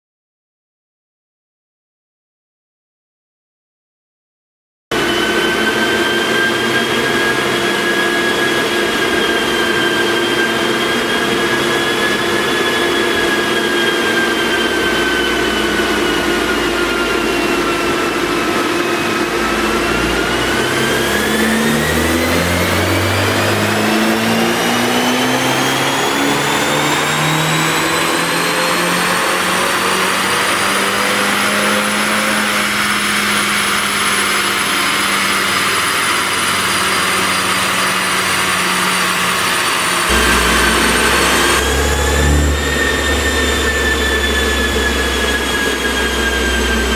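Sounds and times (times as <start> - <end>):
high whine: 4.9 - 33.8, 36.4 - 46.9
car engine pulling under load: 39.2 - 46.9.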